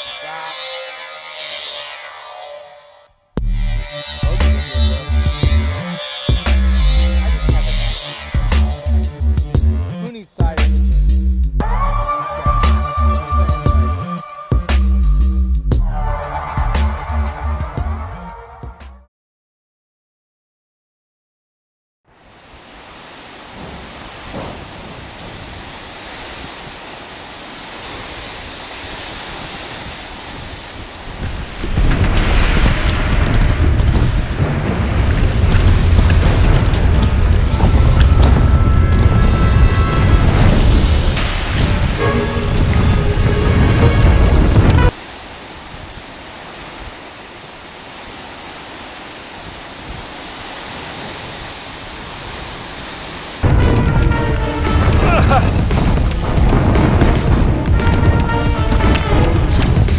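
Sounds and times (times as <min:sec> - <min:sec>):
music: 0:03.4 - 0:19.1, 0:36.6 - 0:44.9, 0:53.4 - 0:59.9
rushing water: 0:04.3 - 0:10.6, 0:22.1 - 0:59.9
storm wind rushing: 0:22.4 - 0:59.9.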